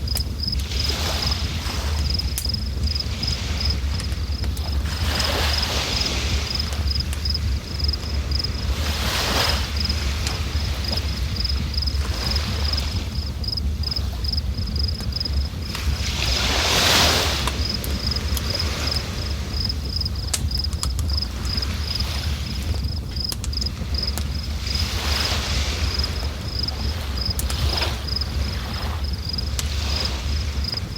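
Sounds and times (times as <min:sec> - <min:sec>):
cricket chirping: 0:00.0 - 0:30.9.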